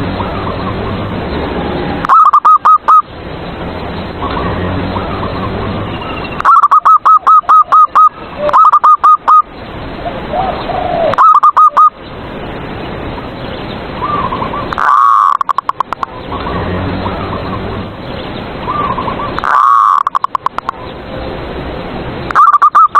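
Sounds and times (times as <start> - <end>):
dove cooing: 2.0 - 3.0, 6.4 - 9.4, 10.3 - 11.9, 18.7 - 20.4.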